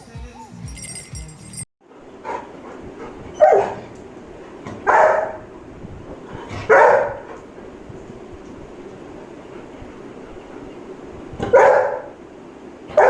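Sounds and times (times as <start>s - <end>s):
dog barking: 2.2s - 3.9s, 4.7s - 5.4s, 6.6s - 7.3s, 11.4s - 12.1s.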